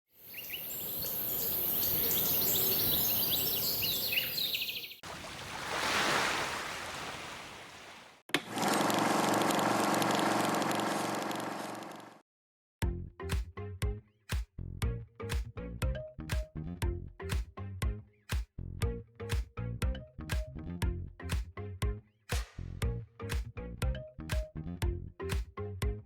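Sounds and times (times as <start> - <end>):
birds chirping: 0.2 - 5.0.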